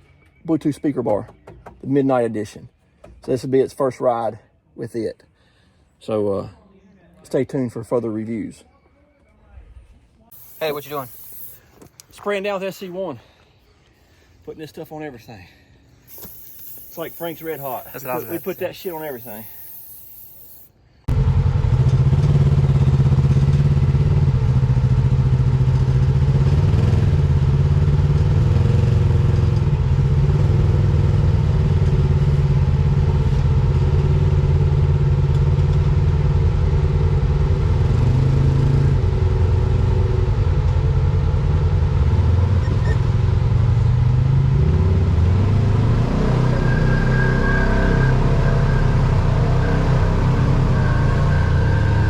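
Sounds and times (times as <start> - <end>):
utility vehicle engine running: 16.1 - 26.8, 47.5 - 52.0.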